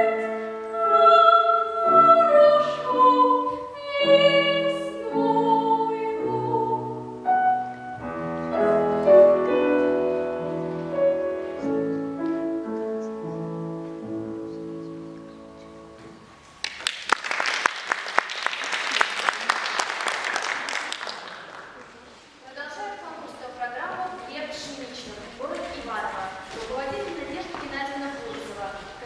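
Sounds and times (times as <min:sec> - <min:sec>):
child singing classical style: 0:00.0 - 0:16.3
piano accompaniment: 0:00.0 - 0:16.6.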